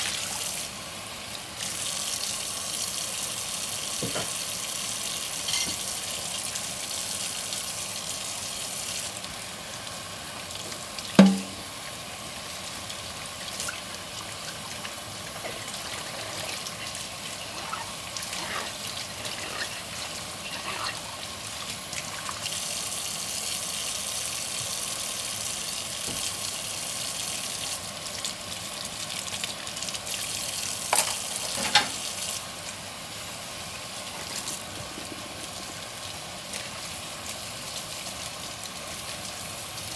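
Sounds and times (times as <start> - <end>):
tap water running: 0.0 - 39.9
dish knocking: 11.2 - 11.6.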